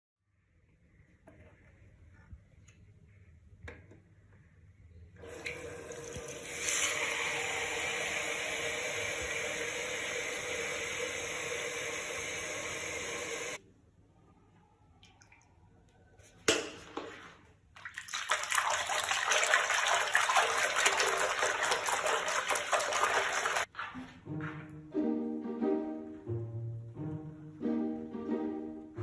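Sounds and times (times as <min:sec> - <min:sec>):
tap water running into sink: 0:05.2 - 0:13.6, 0:17.8 - 0:23.7.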